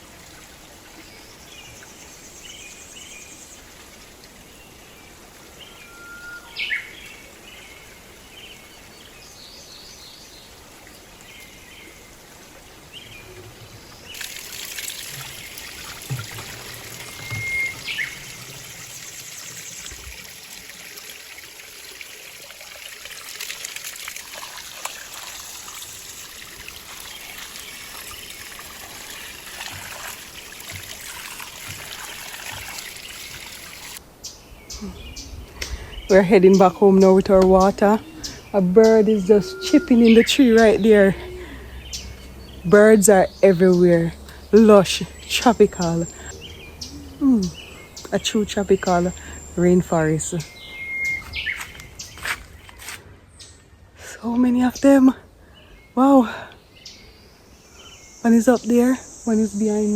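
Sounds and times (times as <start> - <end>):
water trickling: 0.0 - 34.1, 35.5 - 56.5
bird chirps: 16.5 - 20.1, 34.3 - 53.6.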